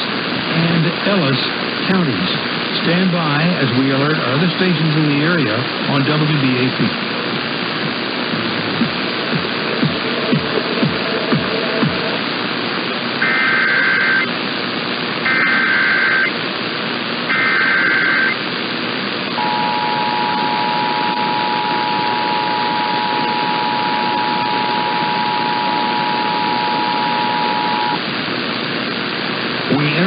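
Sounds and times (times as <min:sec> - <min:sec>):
radio hiss: 0:00.0 - 0:30.0
digital header data bursts: 0:13.2 - 0:14.3, 0:15.2 - 0:16.4, 0:17.3 - 0:18.4
two-tone attention signal: 0:13.2 - 0:14.3, 0:17.3 - 0:18.4, 0:19.4 - 0:28.0.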